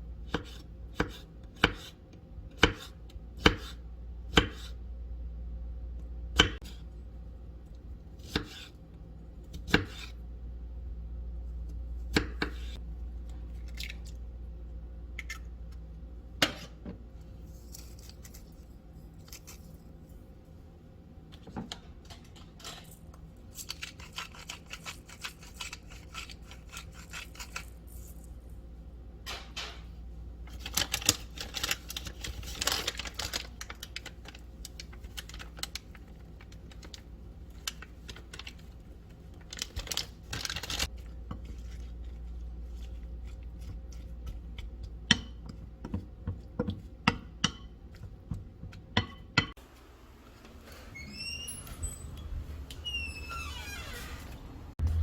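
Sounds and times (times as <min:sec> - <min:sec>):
knife chopping on cutting board: 0:00.3 - 0:02.0, 0:02.6 - 0:04.8
low hum: 0:49.8 - 0:55.0.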